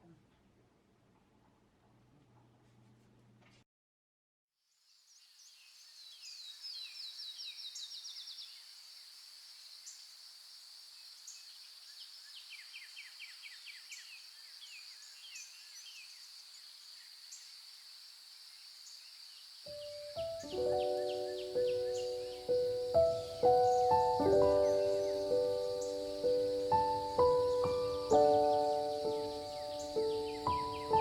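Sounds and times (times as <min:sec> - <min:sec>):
birds chirping and trilling: 0:04.9 - 0:10.2, 0:11.0 - 0:31.0
high insect drone: 0:06.8 - 0:31.0.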